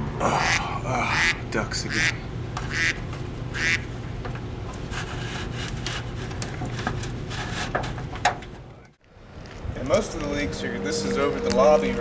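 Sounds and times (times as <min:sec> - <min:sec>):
steady low hum: 0:00.0 - 0:12.0
duck quacking: 0:00.4 - 0:03.9.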